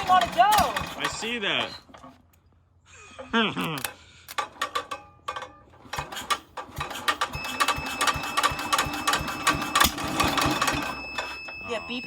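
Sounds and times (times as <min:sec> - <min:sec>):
high-pitched tone: 0:10.7 - 0:12.0.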